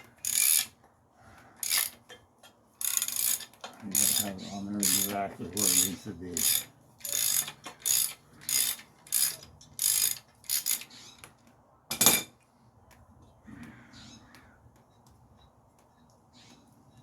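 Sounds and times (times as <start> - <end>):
ratchet wrench strokes: 0.2 - 0.7, 1.6 - 2.0, 2.8 - 10.9.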